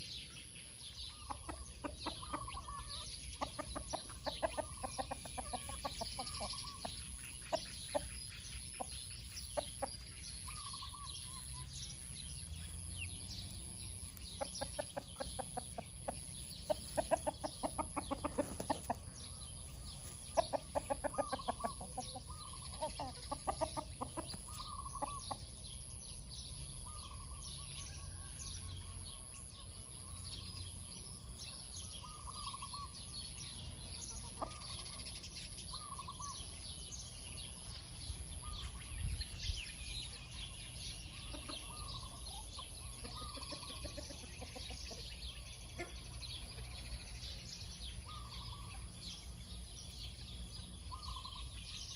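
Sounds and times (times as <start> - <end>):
hens clucking: 1.1 - 11.6, 13.4 - 25.5, 41.0 - 47.3.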